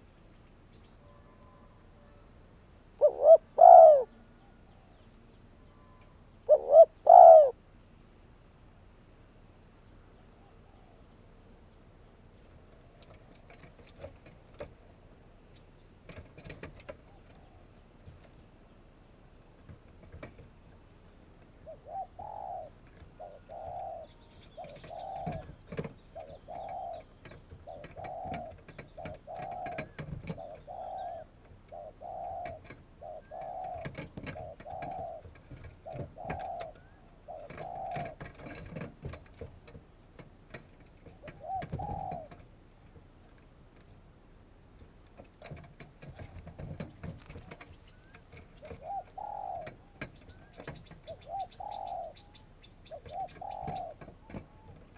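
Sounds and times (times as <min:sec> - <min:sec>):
dove cooing: 0:00.9 - 0:07.6, 0:10.1 - 0:11.1, 0:16.1 - 0:18.4, 0:19.7 - 0:43.7, 0:45.2 - 0:54.9.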